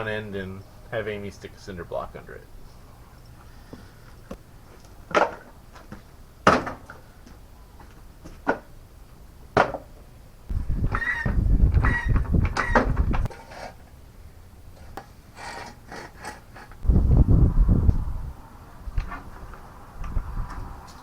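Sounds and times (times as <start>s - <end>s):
rumbling and scraping of jack: 10.5s - 14.0s, 14.7s - 18.0s.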